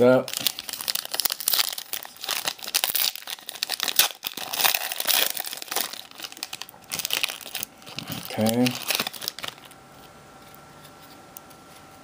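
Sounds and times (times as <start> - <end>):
plastic packaging crinkling: 0.1 - 9.8.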